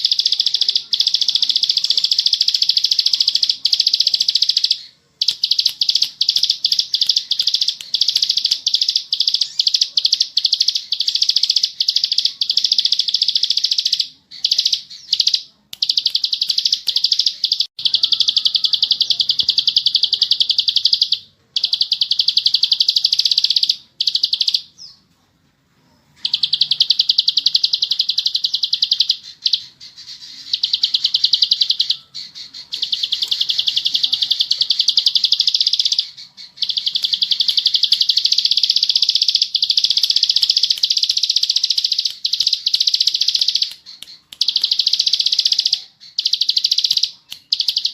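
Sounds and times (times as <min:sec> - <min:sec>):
bird buzzy rattling trill: 0:26.2 - 0:47.9.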